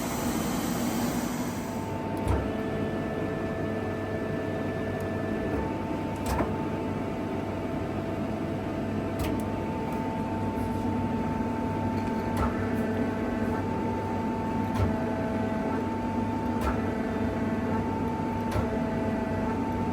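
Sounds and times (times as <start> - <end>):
lathe humming and whining: 0.0 - 19.9.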